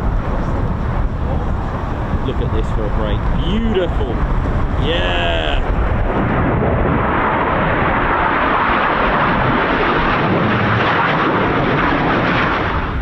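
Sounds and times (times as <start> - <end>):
jet engine noise: 0.0 - 13.0
wind buffeting microphone: 0.0 - 13.0.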